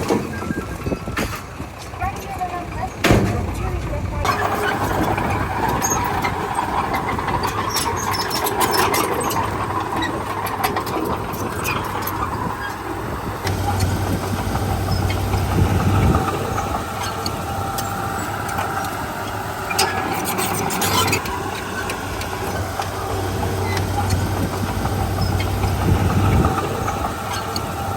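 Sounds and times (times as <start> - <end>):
metallic clanks: 0.0 - 12.8
heavy diesel engines running: 0.0 - 27.9.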